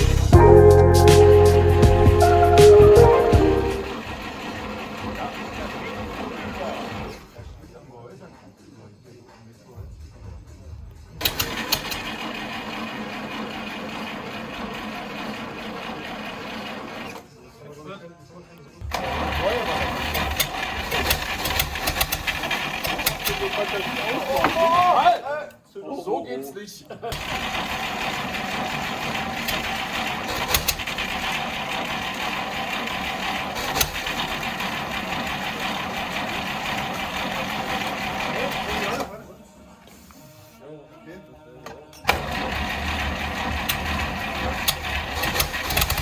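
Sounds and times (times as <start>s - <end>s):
petrol engine running: 0.0s - 7.3s, 11.2s - 17.2s, 18.8s - 24.6s, 27.2s - 39.1s, 42.1s - 46.0s.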